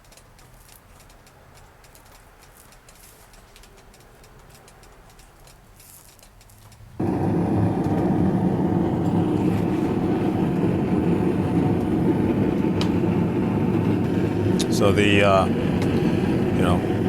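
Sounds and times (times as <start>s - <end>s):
faint ticks: 0.0s - 7.0s
workshop equipment rushing noise: 5.7s - 17.0s.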